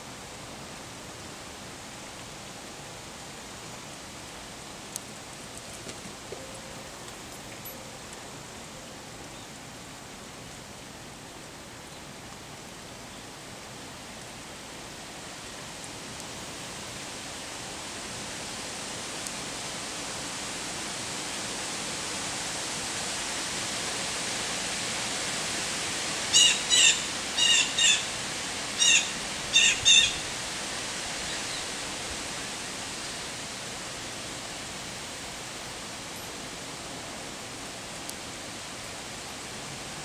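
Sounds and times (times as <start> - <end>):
steady hiss: 0.0 - 40.0
bird calls: 26.4 - 28.1, 28.8 - 30.3.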